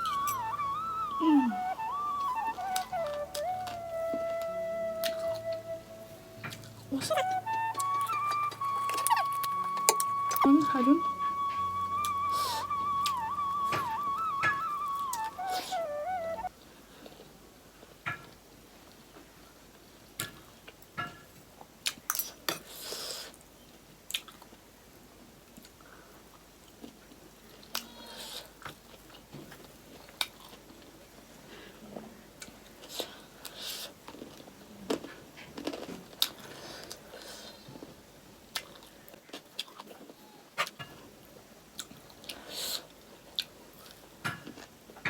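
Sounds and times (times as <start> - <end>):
chewing and crunching snack: 24.1 - 24.6, 25.5 - 45.0.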